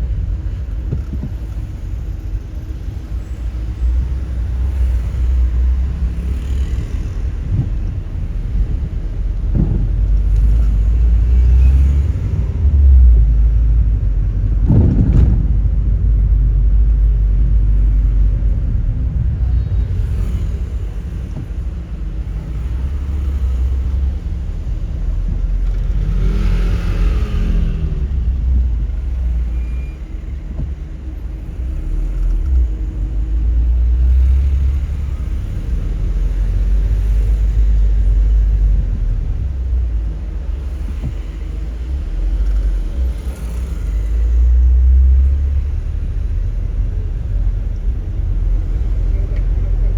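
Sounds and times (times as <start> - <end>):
car engine and road noise: 0.0 - 49.9
low knock: 14.6 - 16.4.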